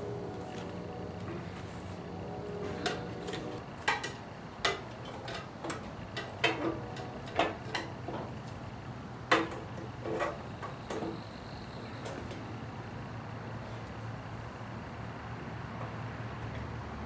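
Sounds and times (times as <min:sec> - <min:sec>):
steady low hum: 0:00.0 - 0:15.5
hand tools clicking and knocking: 0:02.8 - 0:08.6, 0:09.3 - 0:11.2.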